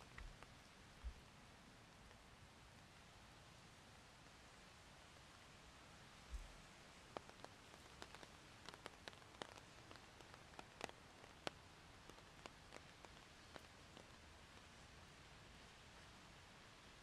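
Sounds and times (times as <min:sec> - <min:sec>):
raindrops ticking: 0:00.0 - 0:01.3, 0:06.2 - 0:15.4
soft rain hiss: 0:00.0 - 0:17.0.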